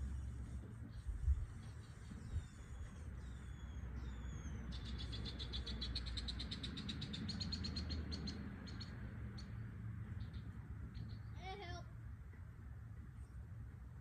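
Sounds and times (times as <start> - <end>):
bird singing: 0.8 - 11.5.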